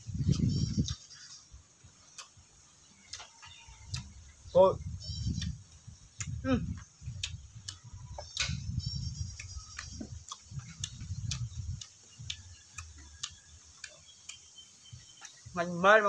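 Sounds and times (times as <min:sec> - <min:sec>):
wet chewing mouth clicks: 0:00.2 - 0:04.5, 0:05.1 - 0:15.5
low thuds: 0:04.8 - 0:13.1.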